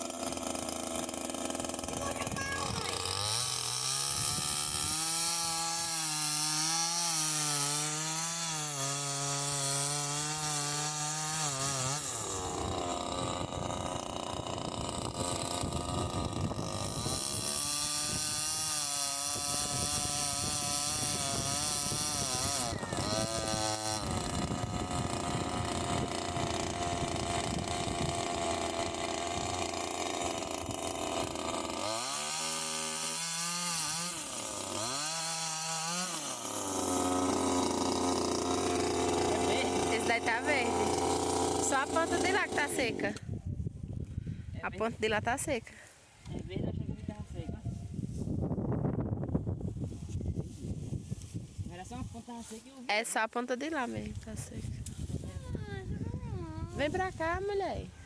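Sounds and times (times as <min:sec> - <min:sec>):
chainsaw cutting wood: 0:00.0 - 0:43.4, 0:56.0 - 0:58.0.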